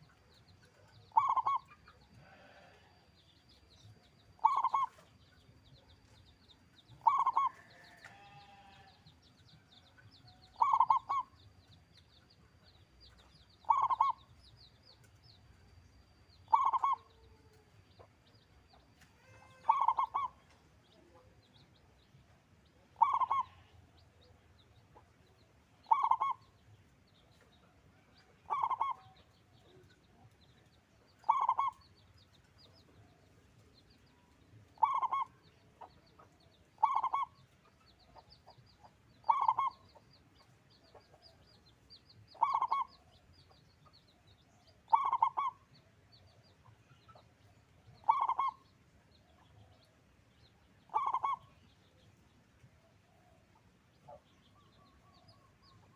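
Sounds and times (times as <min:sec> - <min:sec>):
dove cooing: 0:00.8 - 0:02.8, 0:04.4 - 0:05.0, 0:07.0 - 0:07.7, 0:10.6 - 0:11.3, 0:13.6 - 0:14.2, 0:16.5 - 0:17.3, 0:19.2 - 0:20.4, 0:23.0 - 0:23.7, 0:25.9 - 0:26.4, 0:28.4 - 0:29.2, 0:31.2 - 0:31.8, 0:34.8 - 0:35.4, 0:36.8 - 0:37.3, 0:39.2 - 0:39.8, 0:42.4 - 0:43.0, 0:44.9 - 0:45.6, 0:48.0 - 0:48.6, 0:50.9 - 0:51.4.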